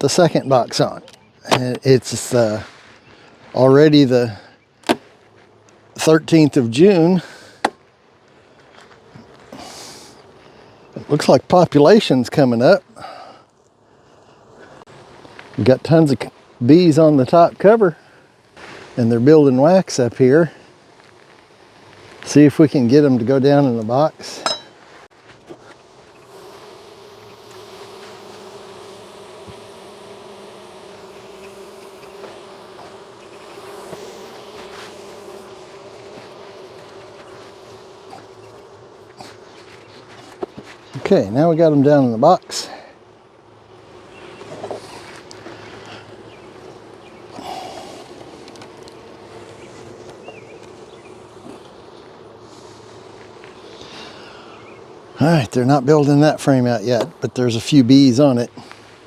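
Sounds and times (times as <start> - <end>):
honeybees buzzing: 0.0 - 59.0
hive frames clicking: 1.0 - 2.0, 48.0 - 52.2
short breathy puff: 9.5 - 10.2.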